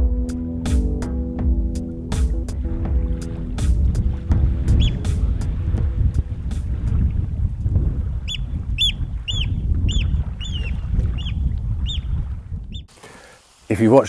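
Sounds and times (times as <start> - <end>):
steady low rumble: 1.2 - 12.9
bird calling: 4.7 - 5.1, 8.2 - 13.4.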